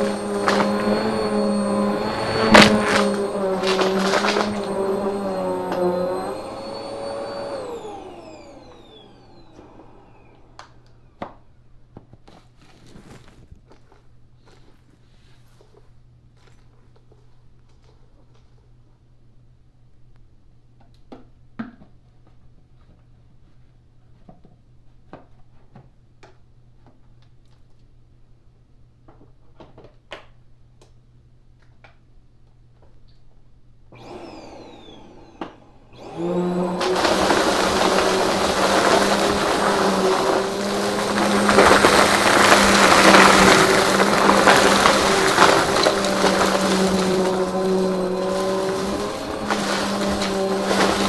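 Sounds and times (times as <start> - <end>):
vacuum cleaner motor whining: 0.0 - 10.9, 34.0 - 51.0.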